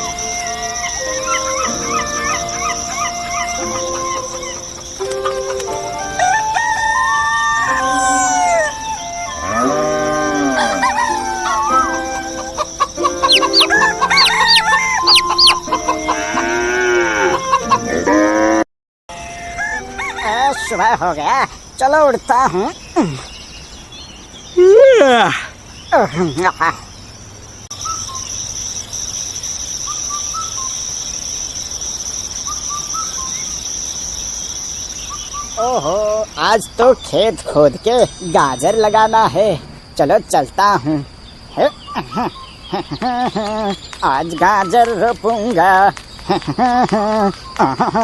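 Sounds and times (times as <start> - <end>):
bird chirps: 0.0 - 16.6, 25.4 - 48.0
crickets trilling: 0.0 - 48.0
rooster crowing: 6.1 - 17.7, 19.1 - 21.0.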